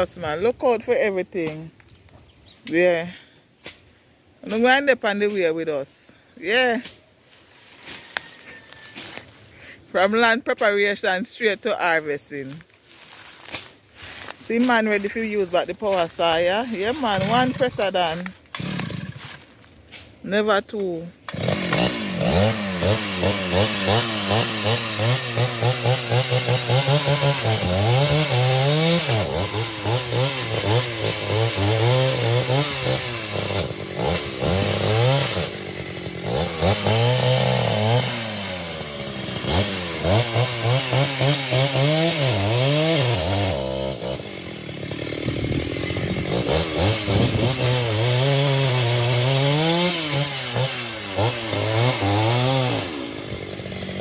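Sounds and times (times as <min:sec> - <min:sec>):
chainsaw engine revving: 0:16.3 - 0:20.1, 0:21.2 - 0:54.0.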